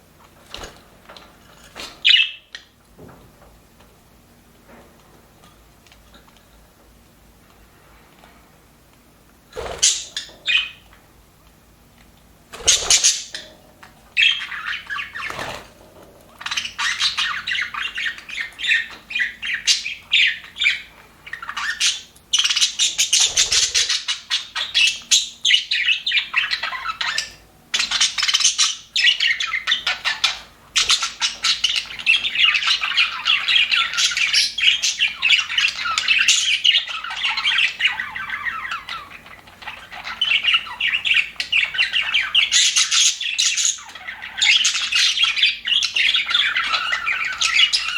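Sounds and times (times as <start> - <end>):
budgerigars chattering and chirping: 1.8 - 2.7, 9.6 - 10.8, 12.6 - 13.5, 14.1 - 47.9.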